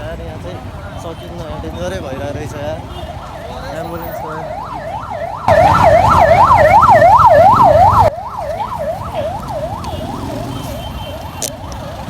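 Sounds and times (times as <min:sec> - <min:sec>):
ambulance siren wailing: 0:03.1 - 0:12.0.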